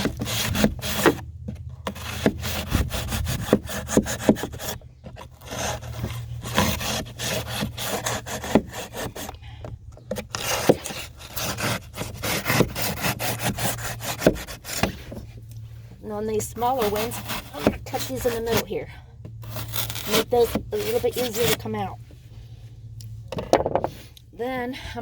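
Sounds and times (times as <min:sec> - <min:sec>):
knife sawing through foam: 0:00.0 - 0:01.2, 0:01.8 - 0:09.4, 0:10.2 - 0:15.2, 0:16.5 - 0:18.8, 0:19.4 - 0:21.8.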